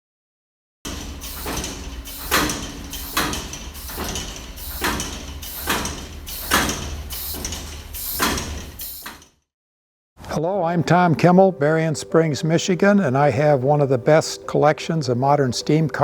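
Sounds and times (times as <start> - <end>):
steam engine exhaust hissing: 0.9 - 9.2.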